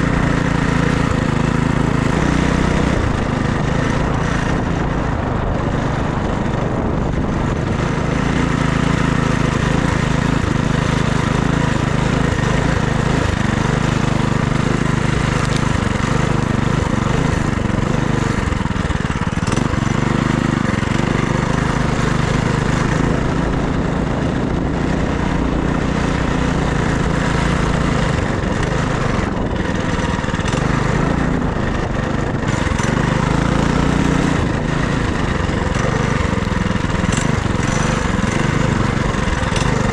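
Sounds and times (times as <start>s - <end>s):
minibike engine running: 0.0s - 39.9s
steady rush of noise: 0.0s - 39.9s.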